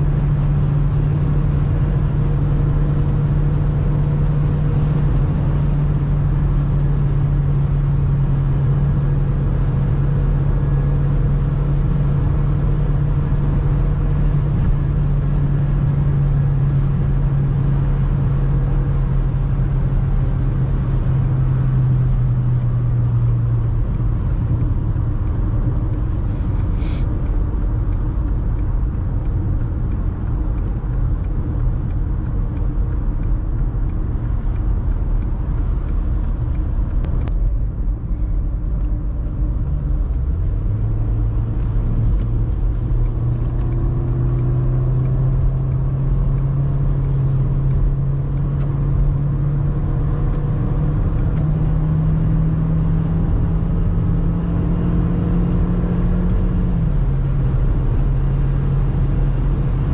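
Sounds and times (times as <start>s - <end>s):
car engine drone: 0.0s - 59.9s
road and wind noise: 0.0s - 59.9s.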